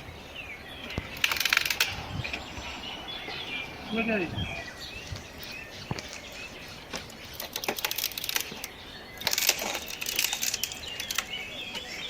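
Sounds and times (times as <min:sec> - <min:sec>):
birds chirping faintly: 0:00.0 - 0:12.0
dry wood and brush rustling: 0:00.0 - 0:12.0
wood snapping: 0:01.0 - 0:02.0, 0:07.0 - 0:11.9.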